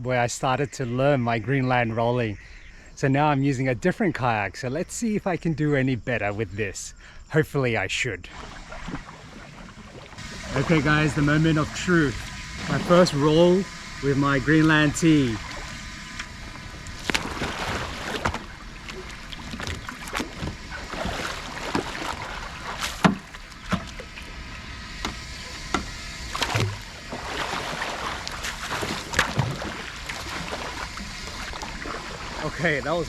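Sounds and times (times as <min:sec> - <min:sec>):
water splashing around a kayak: 0:08.3 - 0:33.0
knocks on kayak: 0:22.8 - 0:23.9.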